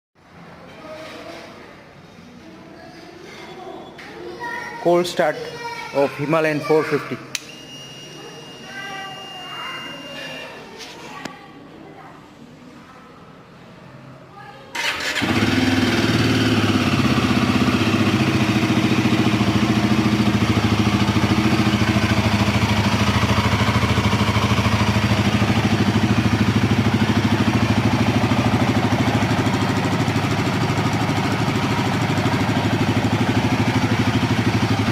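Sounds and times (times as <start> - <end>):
motorcycle engine idling: 14.8 - 34.9.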